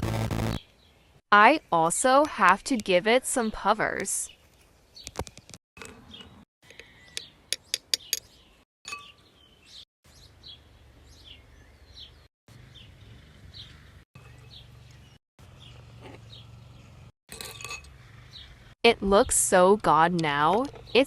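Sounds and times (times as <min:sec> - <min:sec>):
small birds chirping: 0:04.2 - 0:17.1, 0:17.9 - 0:19.5.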